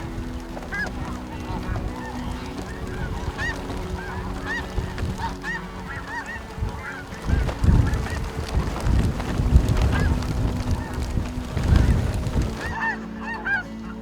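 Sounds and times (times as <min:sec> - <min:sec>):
geese honking: 0:00.0 - 0:14.0
wind buffeting microphone: 0:00.0 - 0:14.0.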